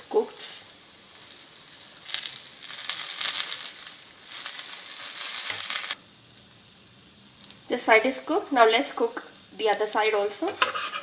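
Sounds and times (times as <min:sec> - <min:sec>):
bread frying in oil: 0:00.0 - 0:11.0
spatula sliding in pan: 0:10.5 - 0:11.0.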